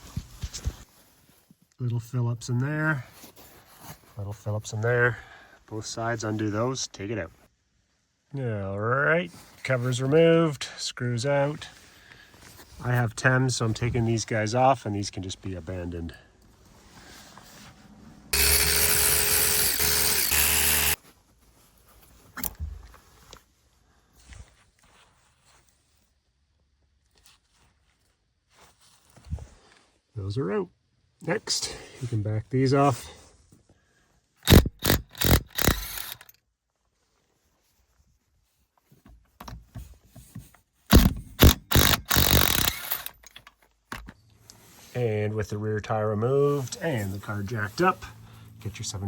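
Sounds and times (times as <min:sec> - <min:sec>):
power driver motor whine: 0:18.4 - 0:21.0
wrench rattling bursts: 0:18.4 - 0:21.0, 0:34.4 - 0:36.3, 0:40.9 - 0:43.4.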